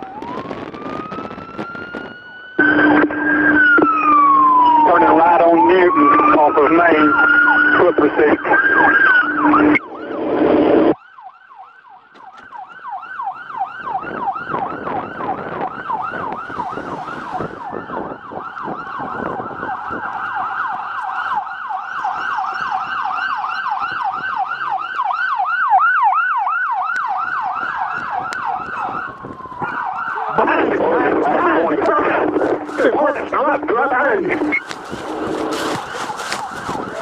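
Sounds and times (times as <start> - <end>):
police siren yelping: 0.0 - 37.0.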